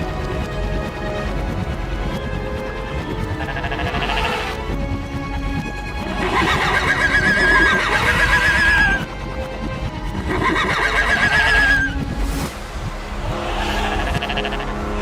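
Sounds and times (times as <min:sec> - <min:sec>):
background music: 0:00.0 - 0:15.0
horse whinnying: 0:06.0 - 0:09.1, 0:10.2 - 0:11.9.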